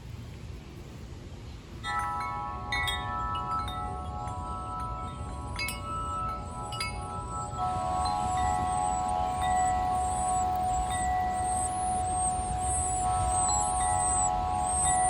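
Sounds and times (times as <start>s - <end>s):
wind chimes ringing: 1.8s - 15.0s.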